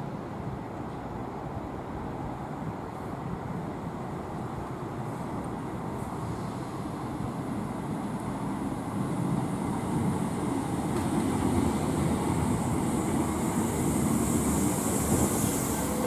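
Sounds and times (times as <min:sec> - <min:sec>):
train wheels rumbling on rail: 0:00.0 - 0:16.0
high hiss: 0:11.7 - 0:16.0.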